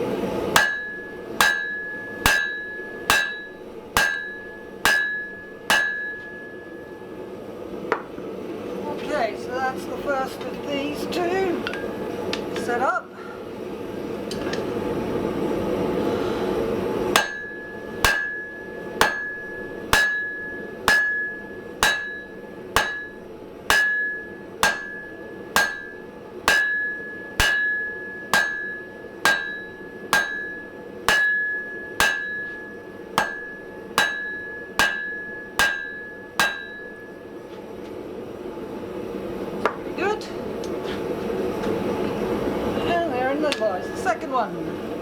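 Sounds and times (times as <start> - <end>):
hammer striking steel on anvil: 0.5 - 7.2, 17.1 - 37.4.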